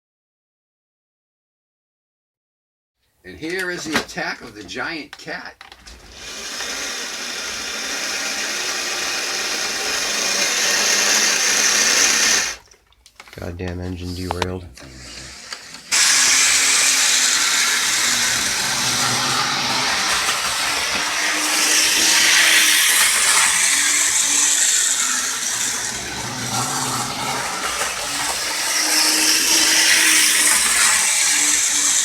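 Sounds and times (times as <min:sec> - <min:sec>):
model train whirring: 0:05.6 - 0:12.6, 0:14.3 - 0:32.0.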